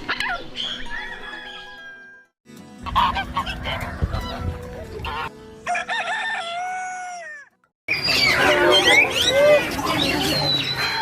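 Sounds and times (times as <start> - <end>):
bird honking calls: 2.8 - 4.4.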